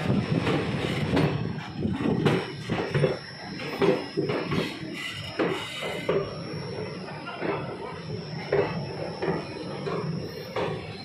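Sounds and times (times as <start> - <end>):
train coach rattling and clanking: 0.0 - 11.0
squeaks: 4.6 - 6.1.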